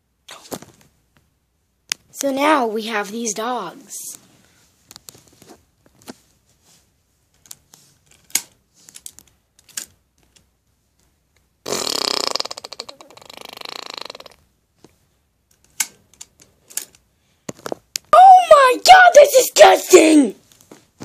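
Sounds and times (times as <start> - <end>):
buzzing raspberry fart noise: 11.6 - 14.4.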